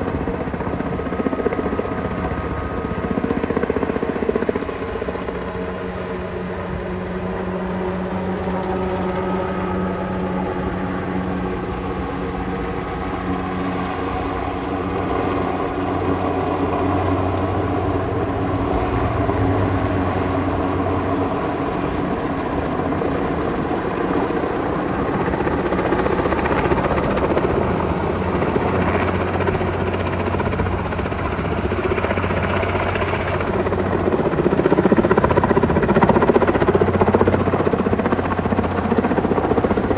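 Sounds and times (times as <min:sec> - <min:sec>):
helicopter engine and rotors: 0:17.2 - 0:21.7.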